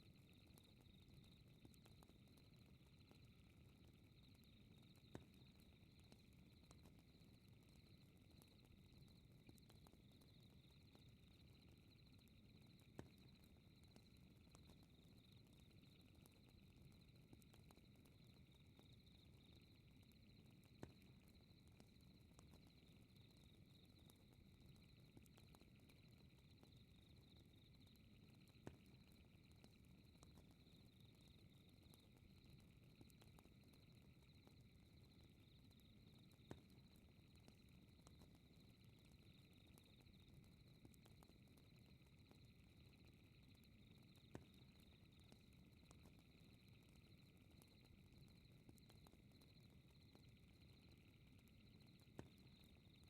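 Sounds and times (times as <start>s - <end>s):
fire crackling and popping: 23.6s - 51.4s
insects chirring: 42.8s - 53.0s.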